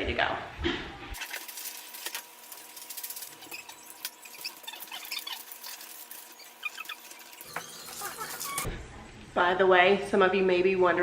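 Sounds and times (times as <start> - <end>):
paper crinkling and rustling: 1.2 - 8.7
short high squeaks: 3.4 - 8.7.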